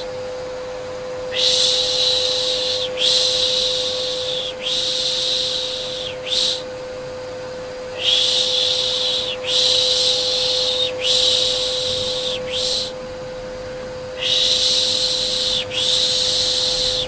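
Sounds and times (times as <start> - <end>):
person shushing: 1.3 - 6.7, 7.9 - 13.0, 14.2 - 17.0.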